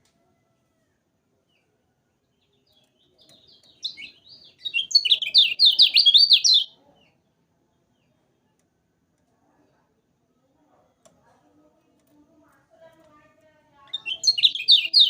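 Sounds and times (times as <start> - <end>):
bird singing sharp notes: 3.3 - 6.7, 13.9 - 15.0.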